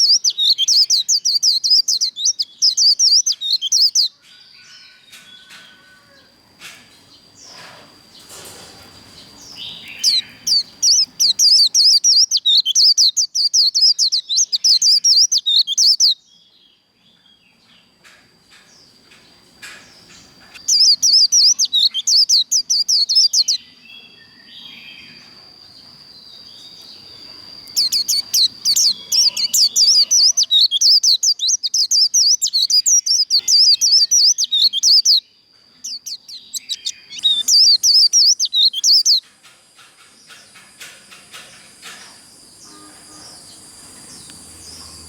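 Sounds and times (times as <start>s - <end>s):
soft bird chirps and clicks: 0.0s - 4.1s, 6.6s - 16.2s, 18.0s - 23.6s, 26.6s - 35.2s, 35.8s - 42.3s
bird twittering song: 0.0s - 45.0s.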